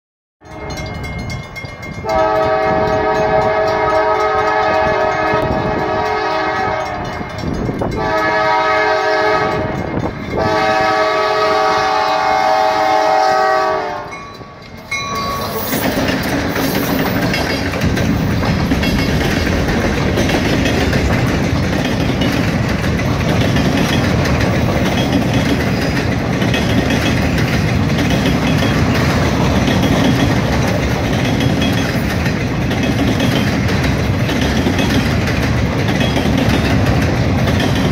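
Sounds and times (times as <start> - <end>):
freight cars rumbling on rails: 0.4 - 37.9
locomotive horn blasts: 2.0 - 14.2.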